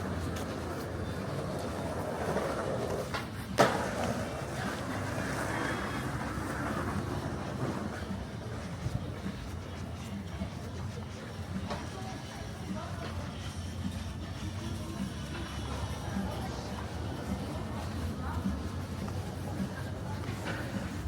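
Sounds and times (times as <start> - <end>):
traffic hum: 0.0 - 11.4.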